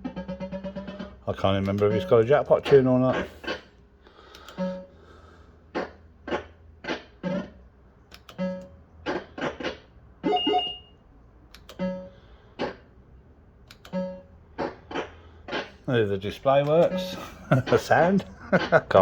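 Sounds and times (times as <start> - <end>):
low mains hum: 0.0 - 19.0
fruit machine bleeping tones: 10.2 - 11.0, 11.7 - 12.2, 13.9 - 14.3.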